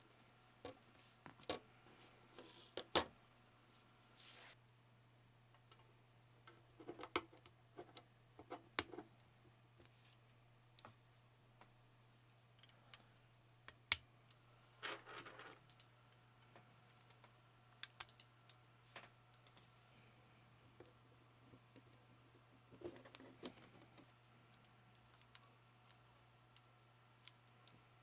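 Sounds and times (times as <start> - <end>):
keyboard parts clicking and tapping: 17.1 - 18.3.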